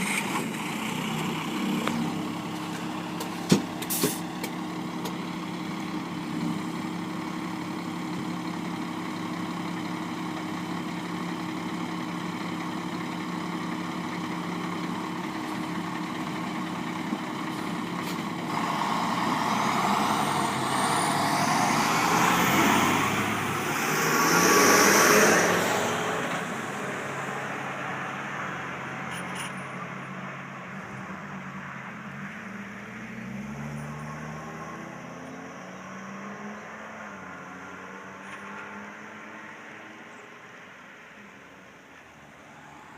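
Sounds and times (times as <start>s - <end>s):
truck engine idling: 0.0s - 23.8s.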